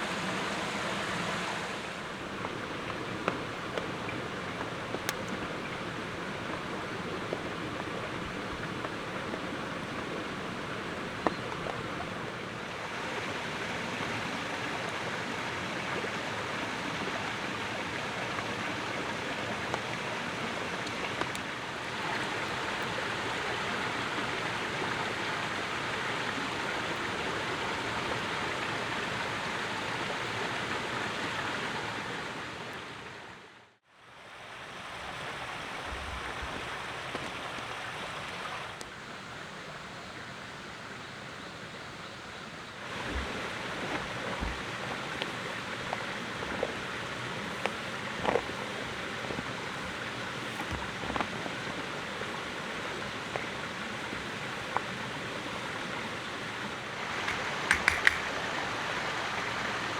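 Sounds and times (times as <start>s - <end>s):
steady rushing outdoor noise: 0.0s - 23.4s, 42.8s - 59.9s
faint clicks: 57.1s - 58.4s.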